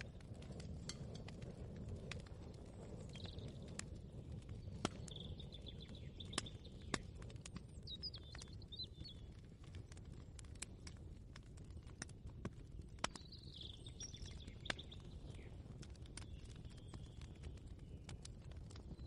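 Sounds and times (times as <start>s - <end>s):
small bird chirping: 4.7s - 9.3s, 13.2s - 15.5s.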